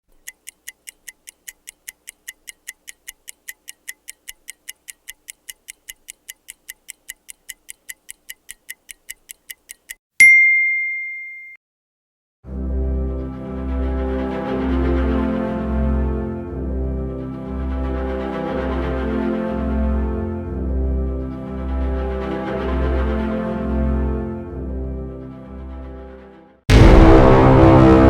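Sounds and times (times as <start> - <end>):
mechanical timer ticking: 0.0 - 10.0
bell ding: 10.2 - 11.6.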